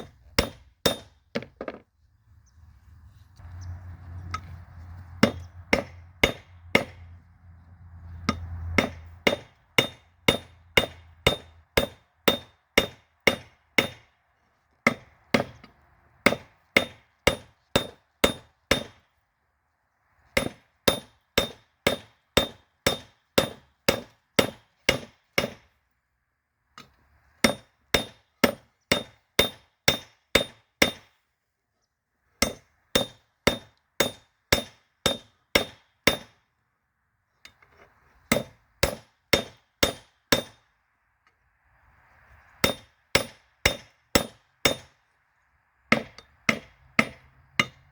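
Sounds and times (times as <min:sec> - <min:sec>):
hammer striking metal on anvil: 0:00.4 - 0:01.5, 0:05.2 - 0:07.0, 0:08.3 - 0:14.0, 0:27.5 - 0:31.1, 0:32.4 - 0:36.4, 0:38.3 - 0:40.6, 0:42.6 - 0:44.9, 0:45.9 - 0:47.8.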